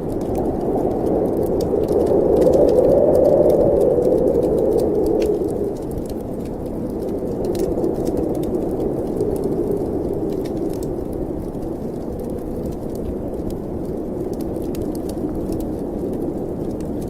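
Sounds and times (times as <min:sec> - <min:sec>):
fireplace crackling: 0:00.0 - 0:17.0
snowstorm wind whooshing: 0:00.0 - 0:17.0.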